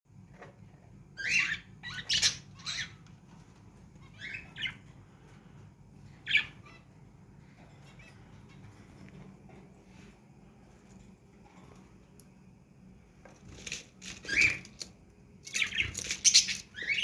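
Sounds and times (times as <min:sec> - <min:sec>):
faint low hum: 0:00.1 - 0:17.0
parrots squawking: 0:01.2 - 0:03.0, 0:04.0 - 0:04.8, 0:06.2 - 0:06.9, 0:15.4 - 0:17.0.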